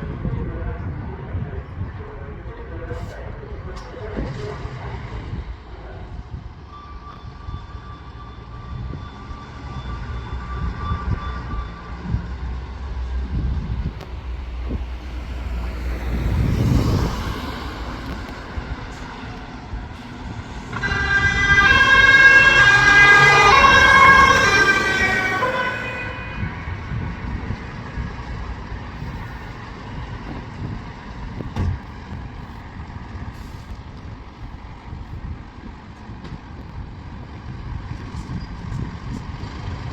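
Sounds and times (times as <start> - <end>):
street traffic: 0.0 - 39.9
emergency vehicle warning horn: 6.7 - 12.6, 17.2 - 27.6
vehicle passing: 12.9 - 31.3.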